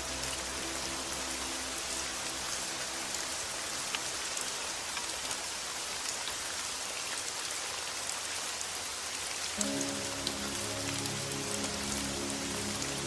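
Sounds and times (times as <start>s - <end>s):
soft music notes: 0.0s - 5.3s, 9.6s - 13.0s
rain falling on a surface: 0.0s - 13.0s.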